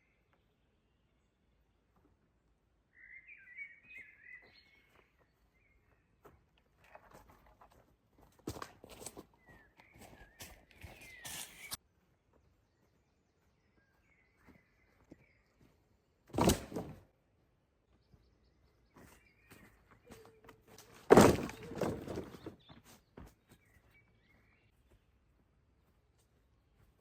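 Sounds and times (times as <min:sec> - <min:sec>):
faint bird chirps: 0:00.0 - 0:01.4, 0:02.8 - 0:06.2, 0:09.3 - 0:11.8, 0:12.5 - 0:15.8, 0:17.8 - 0:25.2
loud wood thuds with crackle: 0:16.3 - 0:17.0, 0:21.0 - 0:22.6.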